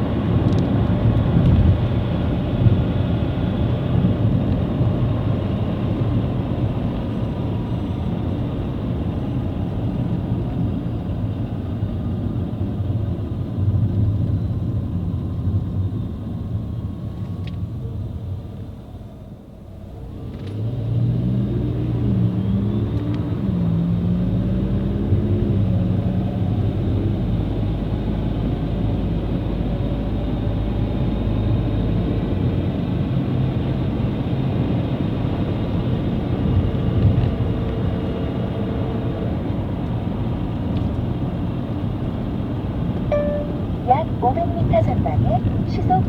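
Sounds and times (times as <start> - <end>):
car engine and road noise drone: 0.0 - 46.0
high whine: 43.1 - 45.0.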